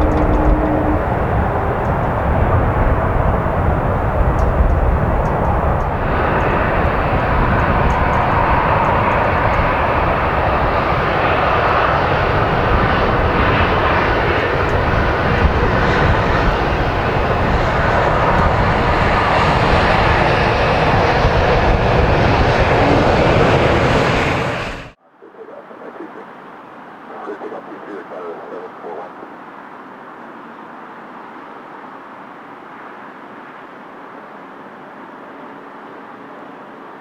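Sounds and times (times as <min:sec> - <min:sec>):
jet aircraft engine: 0:00.0 - 0:25.0.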